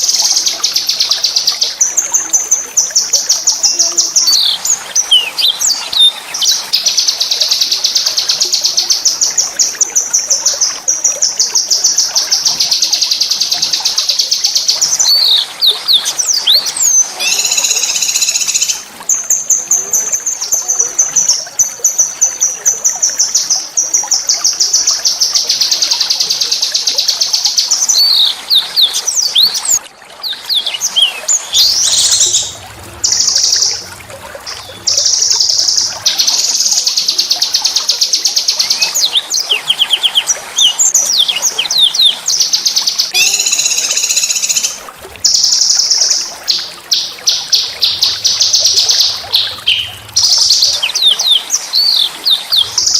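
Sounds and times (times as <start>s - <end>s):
whistled bird notes: 14.8s - 18.8s, 43.1s - 52.9s
songbird trilling: 15.0s - 18.8s, 43.1s - 44.8s.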